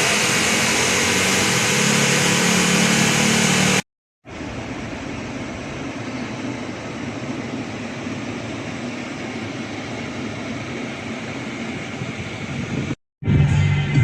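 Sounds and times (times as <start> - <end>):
motor running noise: 0.0 - 3.8.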